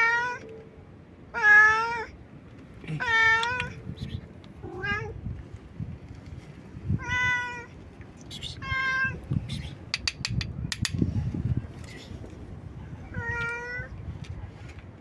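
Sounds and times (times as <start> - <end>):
cat meowing: 1.4 - 2.1, 4.6 - 5.2, 7.0 - 7.7, 13.1 - 13.9.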